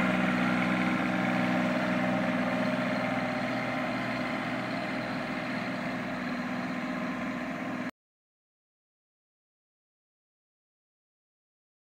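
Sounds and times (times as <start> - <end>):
tractor diesel engine running: 0.0 - 7.9.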